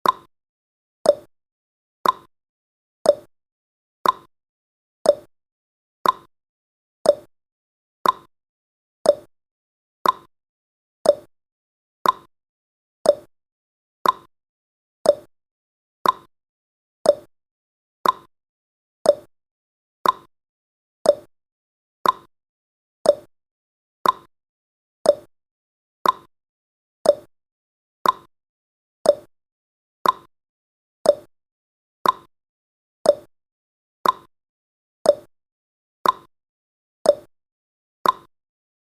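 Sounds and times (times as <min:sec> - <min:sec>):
timer clock ticking: 0:00.0 - 0:00.3, 0:01.1 - 0:01.3, 0:02.0 - 0:02.3, 0:03.1 - 0:03.3, 0:04.0 - 0:04.3, 0:05.1 - 0:05.3, 0:06.0 - 0:06.3, 0:07.1 - 0:07.3, 0:08.0 - 0:08.3, 0:09.1 - 0:09.3, 0:10.0 - 0:10.3, 0:11.1 - 0:11.3, 0:12.0 - 0:12.3, 0:13.1 - 0:13.3, 0:14.0 - 0:14.3, 0:15.1 - 0:15.3, 0:16.0 - 0:16.3, 0:17.1 - 0:17.3, 0:18.0 - 0:18.3, 0:19.1 - 0:19.3, 0:20.0 - 0:20.3, 0:21.0 - 0:21.3, 0:22.0 - 0:22.3, 0:23.0 - 0:23.3, 0:24.0 - 0:24.3, 0:25.1 - 0:25.3, 0:26.0 - 0:26.3, 0:27.0 - 0:27.3, 0:28.0 - 0:28.3, 0:29.1 - 0:29.3, 0:30.0 - 0:30.3, 0:31.1 - 0:31.3, 0:32.0 - 0:32.3, 0:33.1 - 0:33.3, 0:34.0 - 0:34.3, 0:35.1 - 0:35.3, 0:36.0 - 0:36.3, 0:37.1 - 0:37.3, 0:38.0 - 0:38.3.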